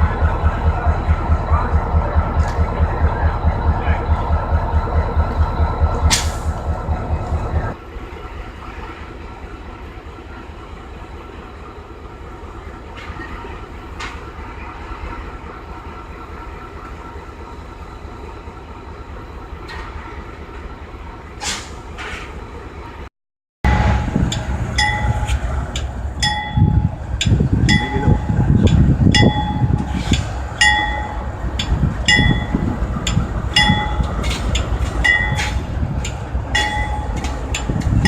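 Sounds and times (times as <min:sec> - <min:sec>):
diesel locomotive engine throbbing: 0:00.0 - 0:38.0.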